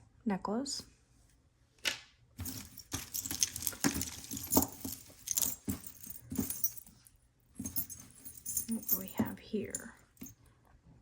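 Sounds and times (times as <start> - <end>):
jewelry jingling and clinking: 2.4 - 10.4.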